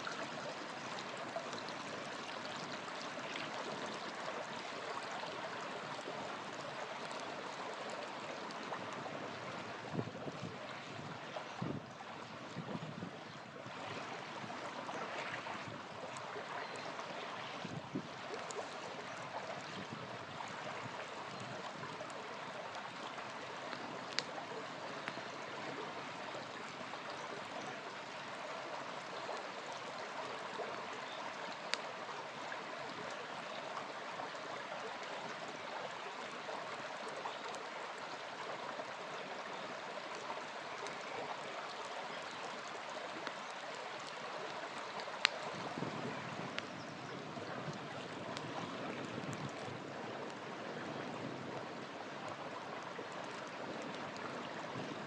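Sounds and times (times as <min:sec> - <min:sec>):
campfire crackling and popping: 0:00.0 - 0:11.2, 0:15.3 - 0:26.9, 0:29.2 - 0:33.2, 0:39.3 - 0:50.4
small river flowing: 0:00.0 - 0:55.0.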